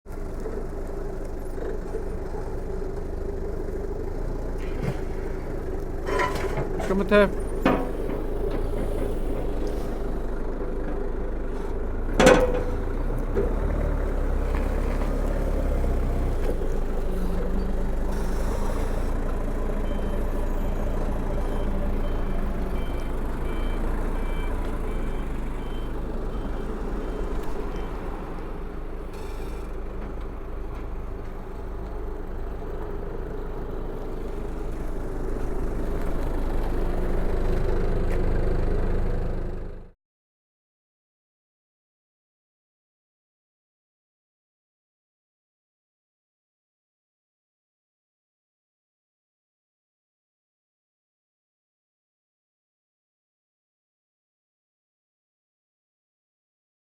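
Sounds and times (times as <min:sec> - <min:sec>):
forklift engine running: 0:00.1 - 0:39.9
reversing alarm beeping: 0:19.8 - 0:28.4.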